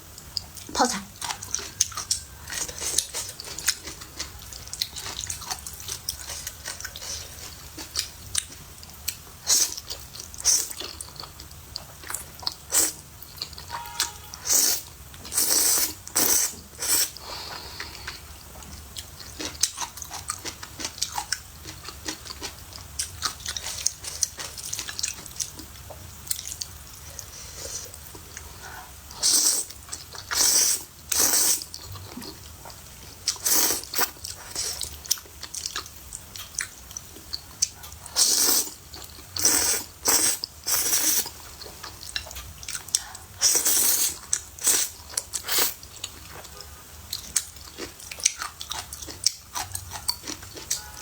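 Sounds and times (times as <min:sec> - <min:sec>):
chewing and biting: 0:18.7 - 0:27.3, 0:29.8 - 0:50.9.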